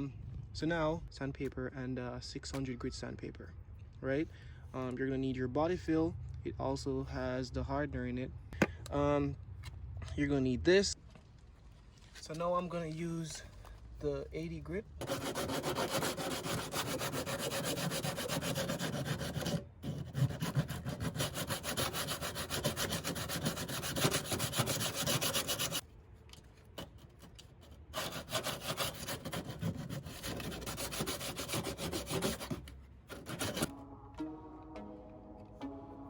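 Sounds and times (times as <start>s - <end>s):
sandpaper rubbing on metal: 15.0s - 25.8s, 27.9s - 33.7s.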